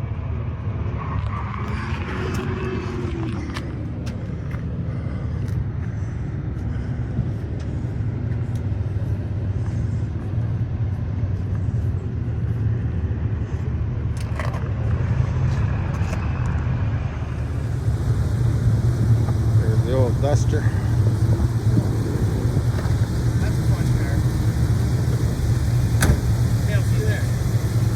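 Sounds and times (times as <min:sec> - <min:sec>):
car engine idling: 0:16.0 - 0:27.9.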